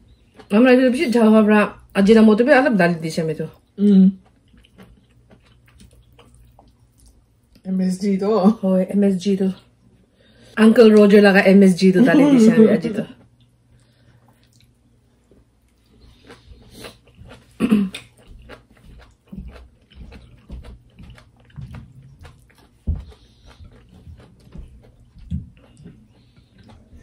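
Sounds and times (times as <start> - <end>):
chewing with wet mouth clicks: 0.0 - 0.5, 3.5 - 7.7, 13.2 - 27.0.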